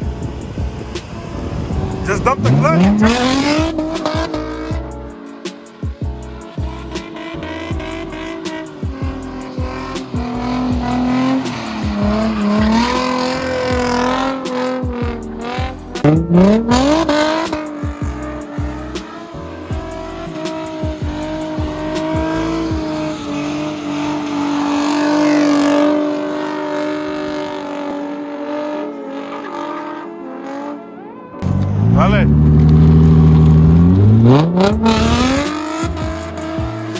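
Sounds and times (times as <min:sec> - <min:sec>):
car engine revving hard: 0:00.0 - 0:30.8, 0:31.4 - 0:36.9
tyres squealing: 0:01.7 - 0:05.1, 0:06.2 - 0:26.6.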